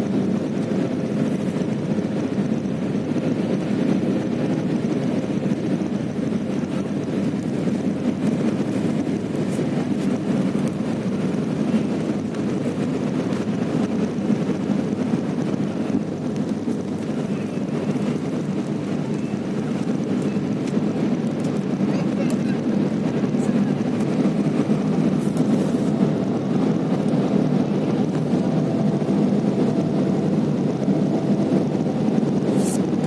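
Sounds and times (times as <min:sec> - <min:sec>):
airliner engines rumbling: 0:00.0 - 0:33.0
rushing air: 0:22.7 - 0:33.0.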